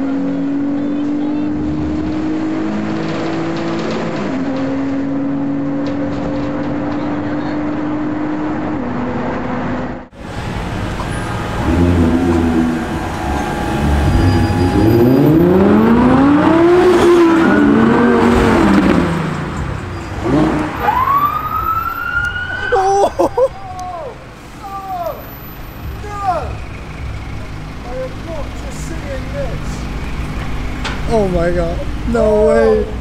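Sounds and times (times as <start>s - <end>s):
sports car engine revving: 0.0s - 9.6s, 10.2s - 21.0s
wailing tone: 11.1s - 18.0s.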